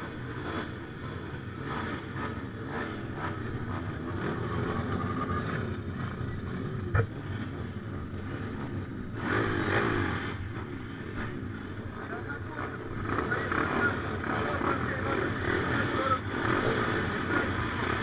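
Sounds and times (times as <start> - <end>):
motocross motorcycle engines: 0.0 - 18.0.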